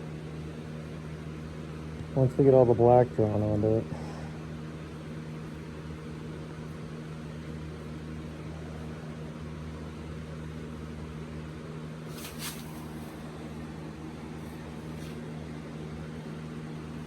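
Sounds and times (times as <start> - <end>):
electric fan motor humming: 0.0 - 17.0
brief hiss: 12.1 - 13.1.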